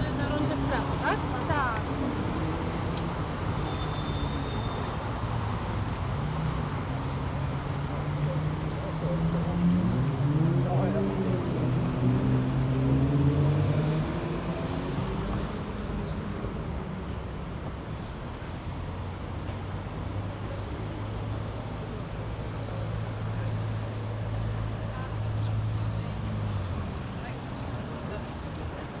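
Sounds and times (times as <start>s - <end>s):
road noise: 0.0s - 29.0s.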